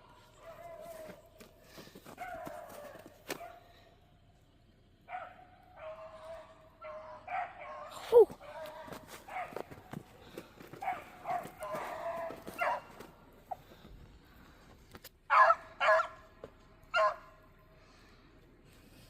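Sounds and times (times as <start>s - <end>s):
dogs barking: 0.0s - 1.5s, 2.1s - 3.8s, 5.0s - 13.7s, 15.3s - 17.5s.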